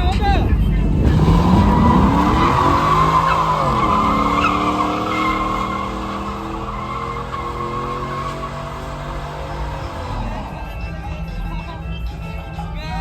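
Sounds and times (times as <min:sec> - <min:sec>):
high-revving engine: 0:00.7 - 0:11.5
tyres squealing: 0:00.9 - 0:11.0.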